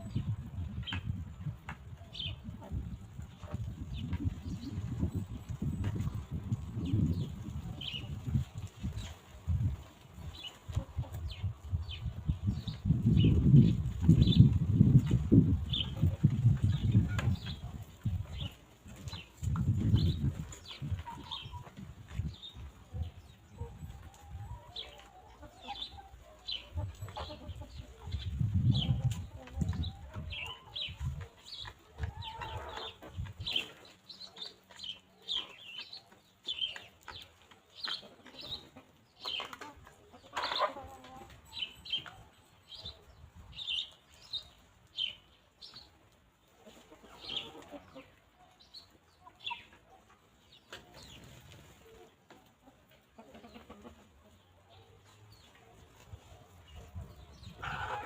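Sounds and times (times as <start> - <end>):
wind rumble on microphone: 0.0 - 24.9, 25.7 - 33.6, 56.0 - 58.0
hens clucking: 0.1 - 42.3, 45.9 - 58.0.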